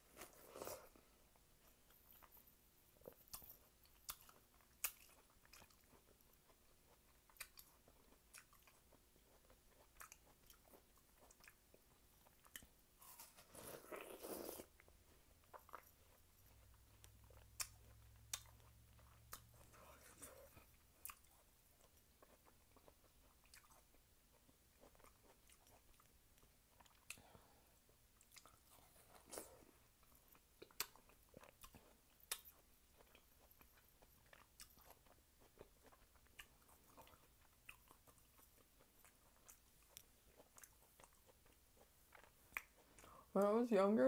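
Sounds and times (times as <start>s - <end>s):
person chewing watermelon: 0.0s - 43.4s.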